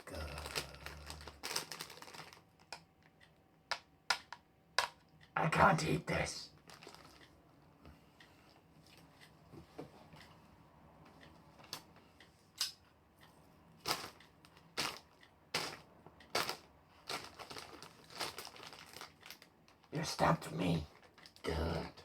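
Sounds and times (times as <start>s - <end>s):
plastic wrapper crinkling: 0.3s - 2.8s, 6.6s - 7.3s, 13.8s - 19.9s.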